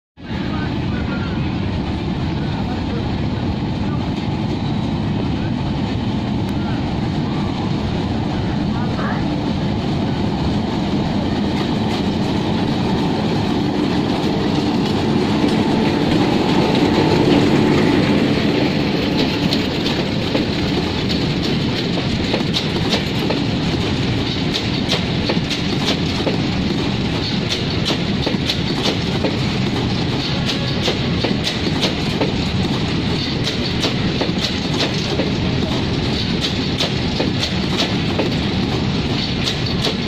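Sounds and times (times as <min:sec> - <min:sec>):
freight train rumble: 0:00.1 - 0:40.0
wheel clicks over rail joints: 0:18.9 - 0:40.0.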